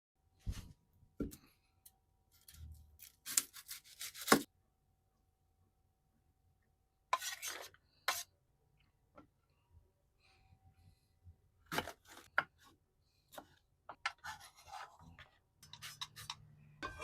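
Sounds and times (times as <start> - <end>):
utensils scraping and knocking: 14.1 - 17.0.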